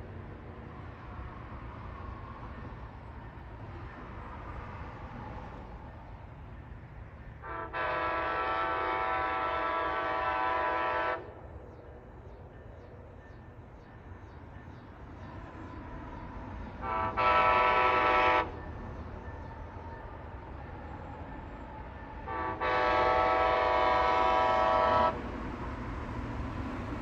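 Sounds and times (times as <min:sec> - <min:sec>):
train horn blasts: 0:07.4 - 0:11.4, 0:16.8 - 0:18.7, 0:22.2 - 0:25.2.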